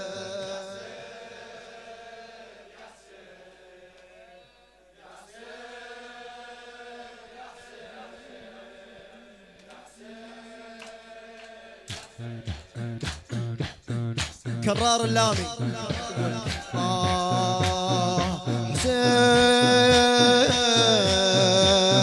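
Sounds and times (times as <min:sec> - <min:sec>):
voices humming held chords: 0:12.2 - 0:22.0.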